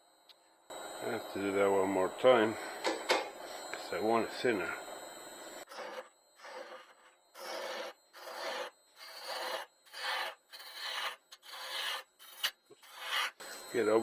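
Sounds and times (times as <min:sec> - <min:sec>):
gouge scraping wood on lathe: 0:05.7 - 0:13.4.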